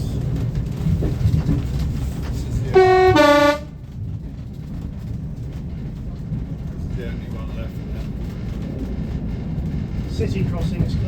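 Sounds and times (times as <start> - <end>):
train rumbling: 0.0 - 11.0
train two-tone horn: 2.7 - 3.8.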